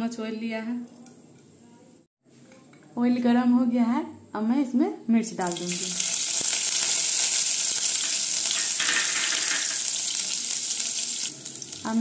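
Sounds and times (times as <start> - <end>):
chillies sizzling in hot oil: 5.4 - 12.0.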